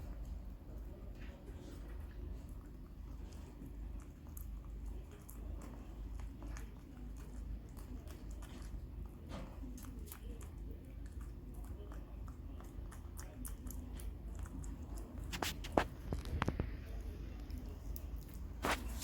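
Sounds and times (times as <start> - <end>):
steady low hum: 0.0 - 19.0
animal chewing mouth clicks: 2.5 - 16.8.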